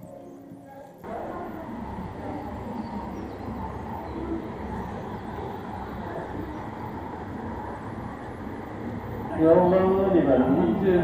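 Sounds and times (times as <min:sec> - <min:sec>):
trains rumbling and humming: 0:01.0 - 0:11.0.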